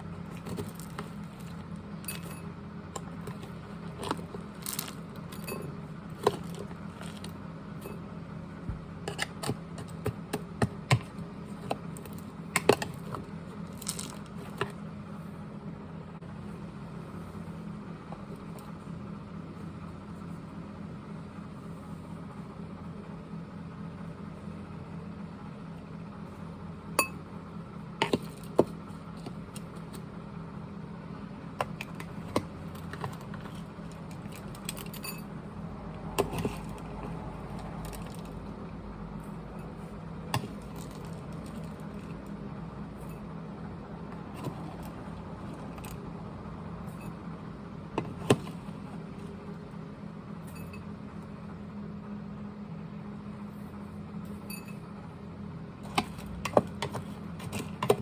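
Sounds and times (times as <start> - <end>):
steady low hum: 0.0 - 58.0
hard objects clicking and knocking: 55.9 - 58.0.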